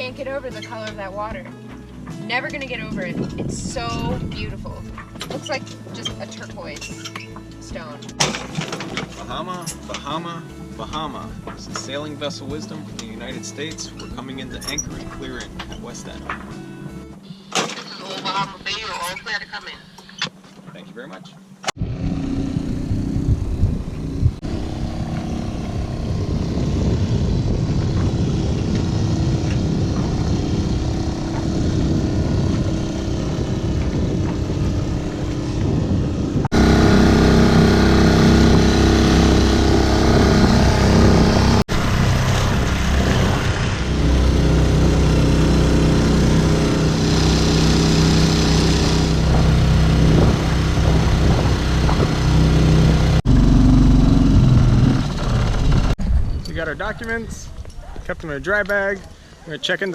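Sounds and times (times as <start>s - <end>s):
outboard motor running: 21.4s - 56.0s.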